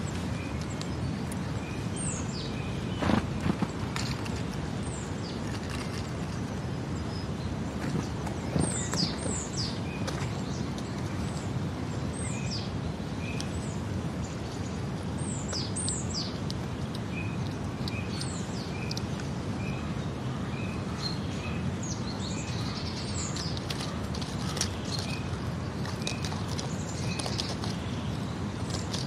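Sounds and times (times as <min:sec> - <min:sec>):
birds chirping: 0:00.0 - 0:29.0
short evenly spaced bird notes: 0:06.4 - 0:29.0.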